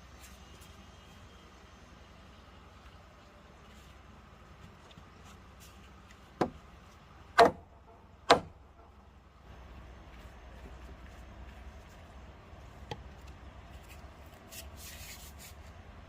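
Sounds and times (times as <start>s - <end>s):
faint steady background noise: 0.0s - 16.0s
sharp knocks: 7.4s - 8.6s.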